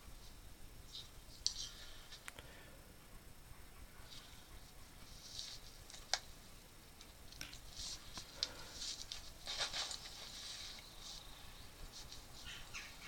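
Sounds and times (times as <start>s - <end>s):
rustling and scraping of handling: 3.9s - 13.0s.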